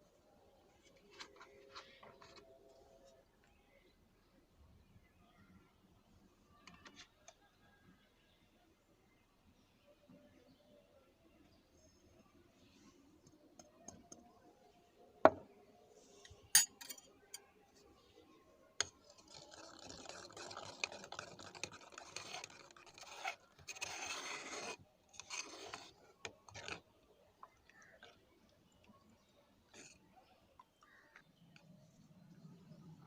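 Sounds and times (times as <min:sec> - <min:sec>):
utensil clinking against dishes: 0:16.6 - 0:17.0
scraping or stirring in a bowl: 0:18.8 - 0:26.9.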